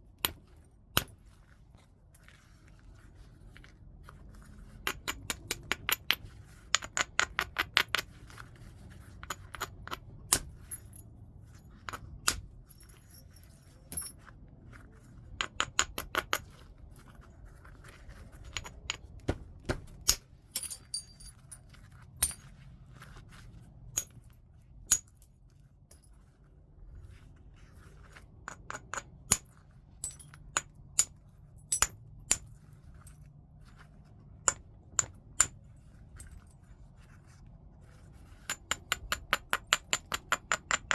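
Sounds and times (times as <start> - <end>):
tool striking stone: 18.6 - 21.1, 38.6 - 40.9.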